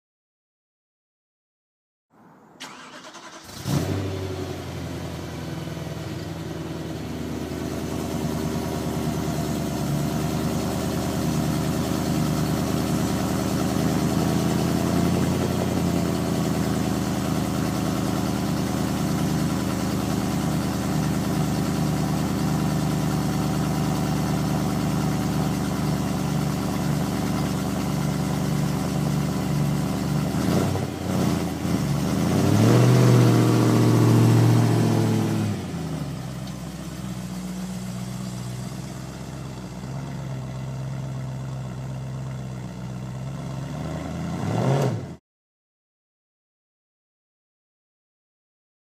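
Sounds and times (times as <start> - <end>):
engine cranking: 2.6 - 4.0
engine starting and idling: 2.6 - 39.9.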